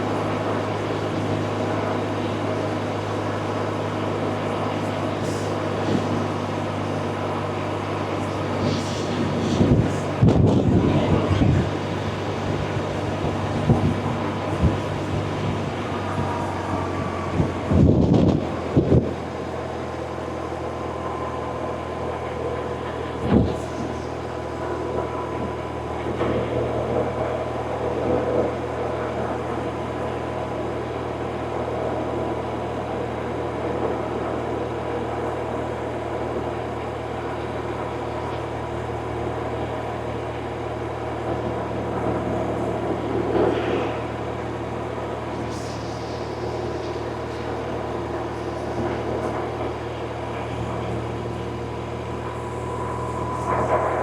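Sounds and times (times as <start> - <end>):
wind noise: 8.4 - 19.4, 23.2 - 24.0.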